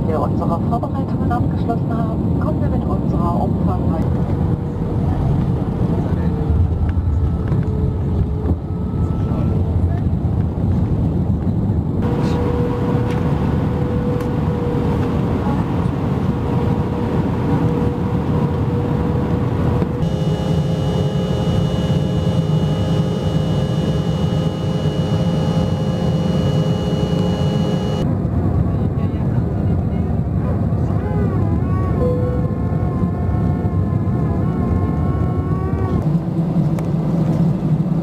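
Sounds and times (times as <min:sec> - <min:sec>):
jet engine and air roar: 0:00.2 - 0:30.7
thin steady whine: 0:19.8 - 0:28.1.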